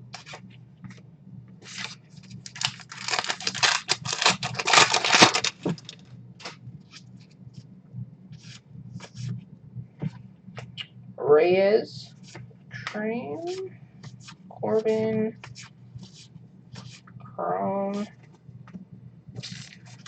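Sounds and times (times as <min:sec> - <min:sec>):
cards rustling: 0:01.6 - 0:06.6, 0:19.4 - 0:20.0
wrapper tearing open: 0:01.7 - 0:06.0.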